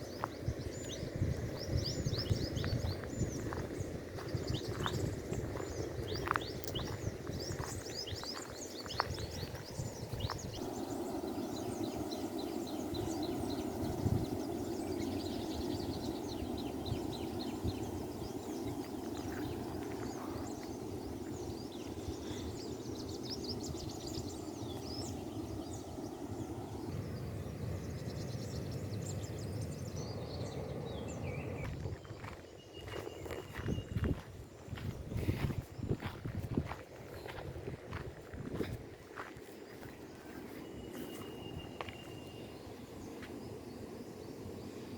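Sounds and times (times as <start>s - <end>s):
birds chirping: 0.0s - 44.9s
steady background noise: 35.9s - 44.9s.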